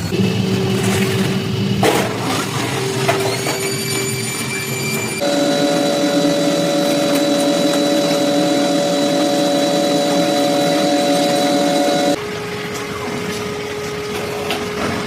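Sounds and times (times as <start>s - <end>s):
machine tool humming: 5.2s - 12.2s.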